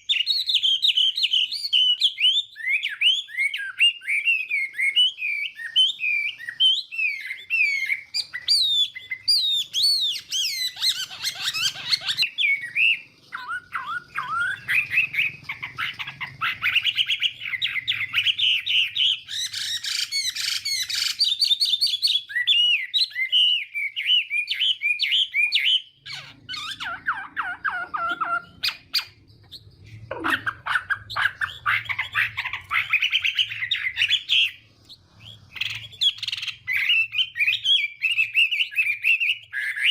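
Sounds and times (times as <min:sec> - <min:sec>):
songbird singing whistled phrases: 0:00.0 - 0:39.9.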